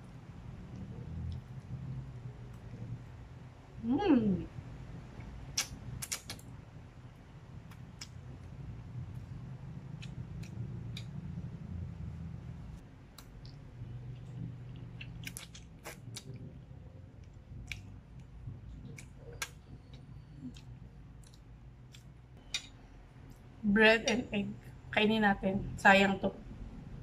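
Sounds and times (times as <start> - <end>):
chewing pasta: 13.1 - 22.2.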